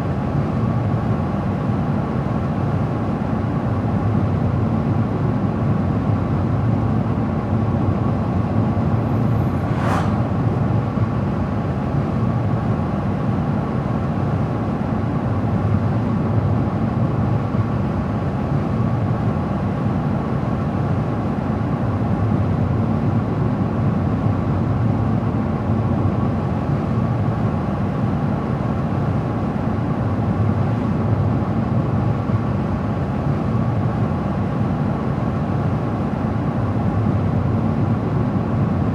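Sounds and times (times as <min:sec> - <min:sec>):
car tyre and road noise: 0:08.0 - 0:12.0
car engine hum: 0:08.8 - 0:11.2.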